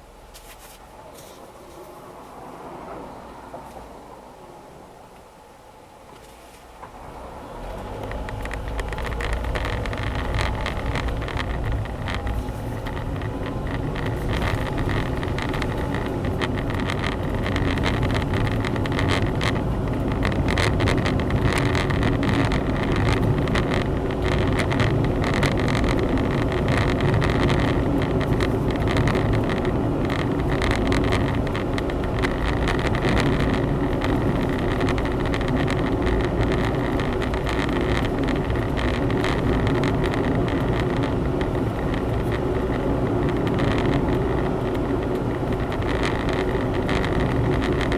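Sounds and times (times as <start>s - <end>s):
car engine: 0.0s - 47.9s
road noise: 0.0s - 47.9s.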